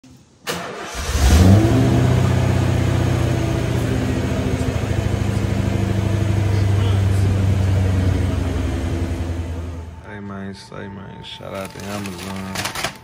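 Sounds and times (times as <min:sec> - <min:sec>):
car engine revving and idling: 0:00.8 - 0:10.1.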